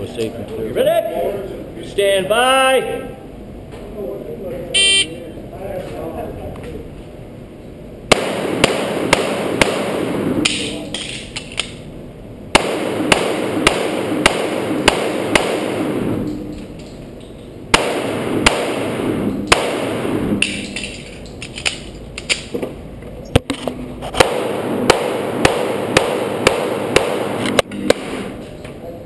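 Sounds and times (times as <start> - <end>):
pistol shots: 8.1 - 10.8, 12.5 - 16.1, 17.7 - 21.1, 24.1 - 28.4.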